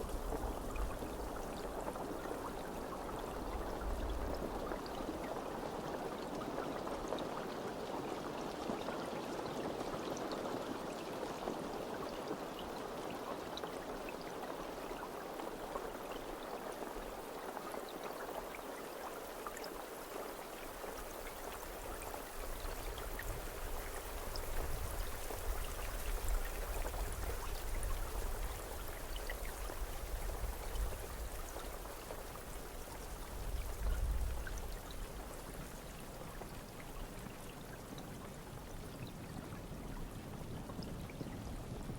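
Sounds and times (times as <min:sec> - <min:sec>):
steady rain hissing: 0:12.8 - 0:41.9.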